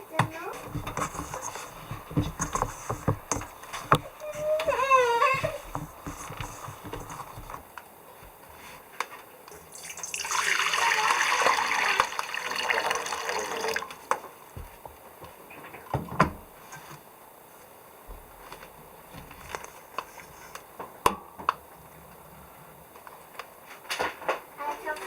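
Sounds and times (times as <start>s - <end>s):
running water: 0.0s - 7.6s, 9.5s - 14.1s
light clicks and knocks: 0.1s - 9.1s.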